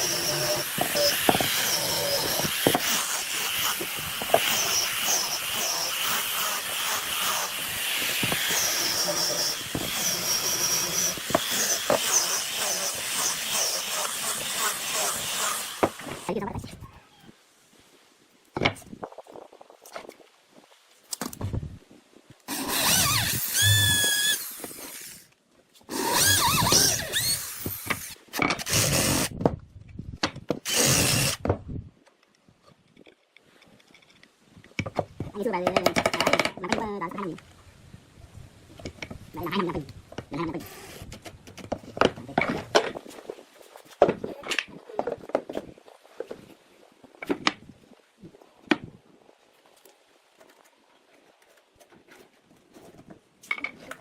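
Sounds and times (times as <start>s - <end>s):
power tool motor whining: 0.0s - 16.3s, 22.5s - 25.1s, 25.9s - 29.3s.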